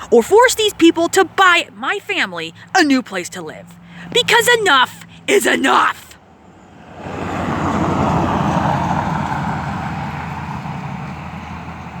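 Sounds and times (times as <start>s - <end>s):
vehicle passing by: 6.2s - 12.0s.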